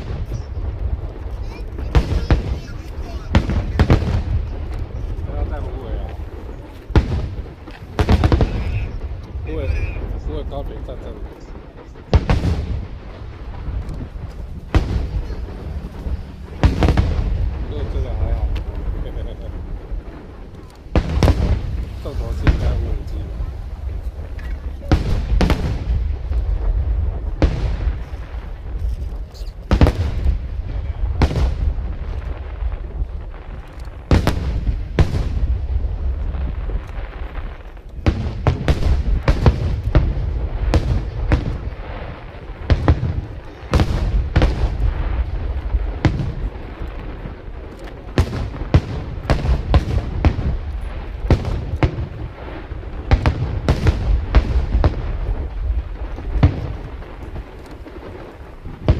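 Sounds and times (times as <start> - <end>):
fireworks bangs: 0.0 - 58.9
low rumble: 0.0 - 58.9.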